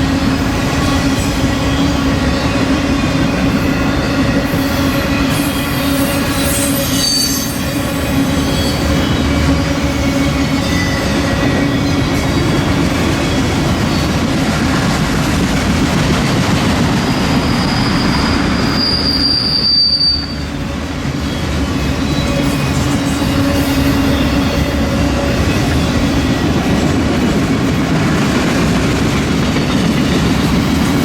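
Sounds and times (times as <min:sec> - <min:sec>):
freight train wheels rumbling: 0:00.0 - 0:31.0
wheel squeal: 0:03.3 - 0:12.5, 0:17.0 - 0:20.6.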